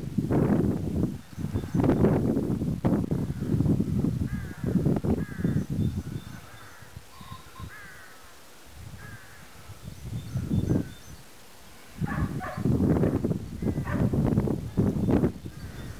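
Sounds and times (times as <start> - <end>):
low rumbling microphone noise: 0.0 - 15.9
harsh bird calls: 4.2 - 8.4, 14.7 - 15.9.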